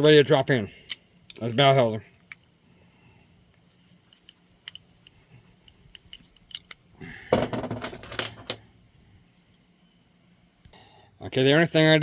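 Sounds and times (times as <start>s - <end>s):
small metal parts clinking: 5.6s - 6.8s.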